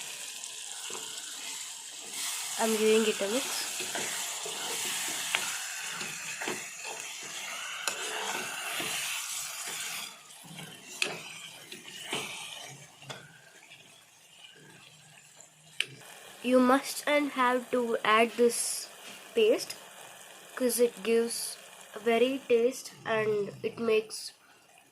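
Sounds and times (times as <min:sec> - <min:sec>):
vegetables sizzling in a pan: 0:00.0 - 0:24.9
utensil scraping and knocking pan: 0:03.8 - 0:13.2.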